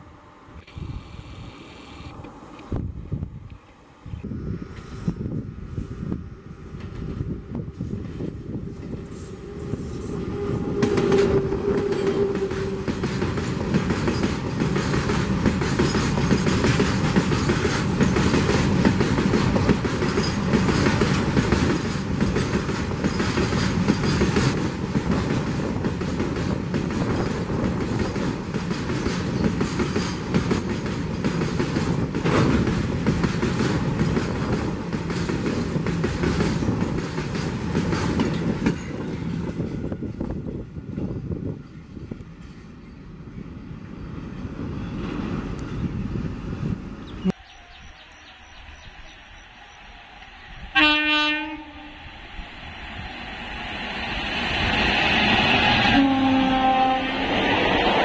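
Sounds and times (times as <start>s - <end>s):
electric locomotive passing: 0.0s - 58.0s
wheels clickety-clack: 10.8s - 39.9s.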